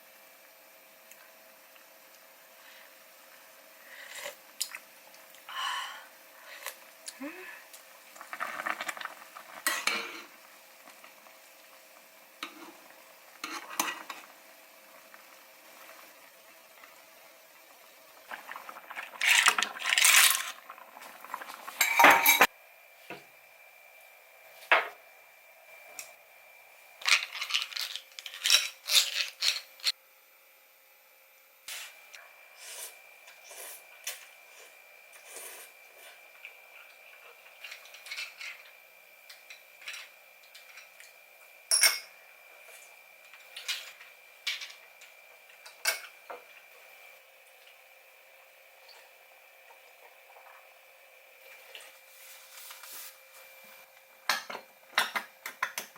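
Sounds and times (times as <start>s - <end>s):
dishes and utensils clattering: 21.8s - 22.5s.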